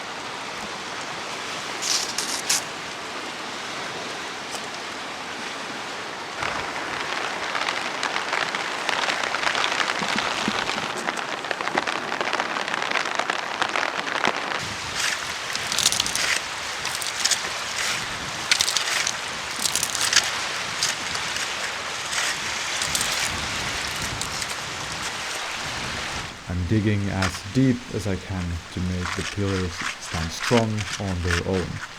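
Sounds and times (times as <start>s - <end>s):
steady rain: 0.0s - 31.9s
sharp crunching scrapes: 1.3s - 2.8s, 14.6s - 31.9s.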